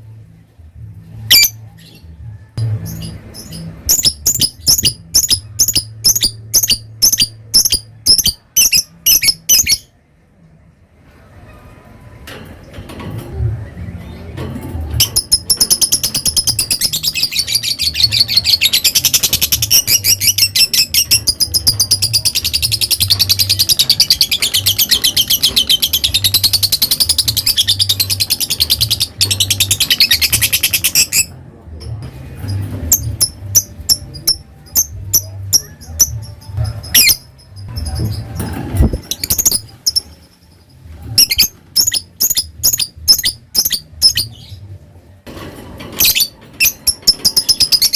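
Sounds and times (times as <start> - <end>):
lovebird rapid chatter: 3.9 - 9.8, 38.8 - 40.1.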